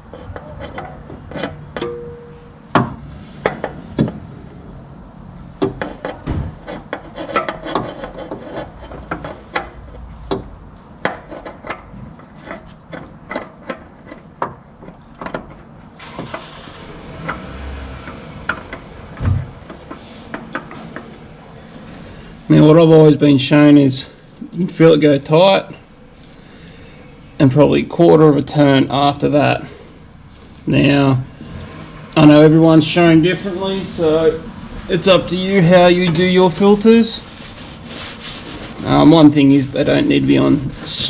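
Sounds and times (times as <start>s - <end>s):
hands scraping oil filter: 0.0s - 2.0s, 5.6s - 22.4s, 34.9s - 41.0s.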